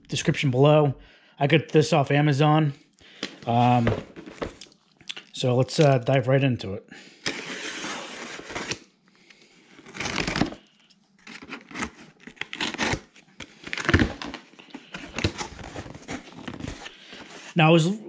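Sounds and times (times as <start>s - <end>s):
packaging rustling and tearing: 3.5s - 4.7s, 7.3s - 8.9s, 9.7s - 17.6s.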